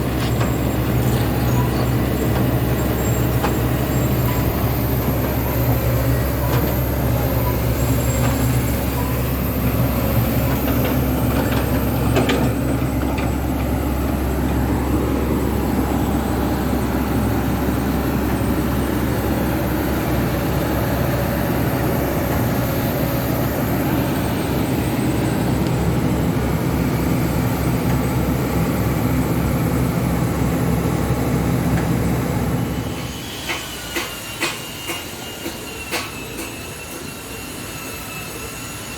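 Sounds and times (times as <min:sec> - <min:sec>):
high squeal: 0:00.0 - 0:12.0, 0:32.6 - 0:38.9
excavator diesel engine running: 0:00.0 - 0:38.7.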